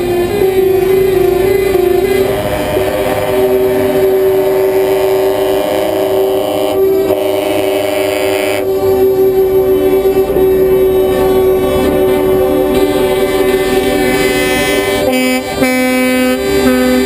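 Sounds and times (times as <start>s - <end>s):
truck air horns blaring: 0.0s - 17.0s.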